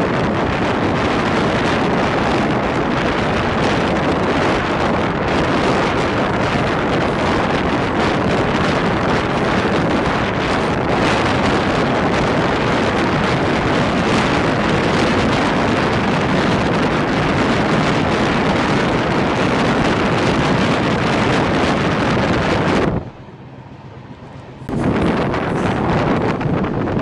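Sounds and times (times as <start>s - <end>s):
train rolling at speed: 0.0s - 27.0s
wind buffeting microphone: 0.0s - 27.0s.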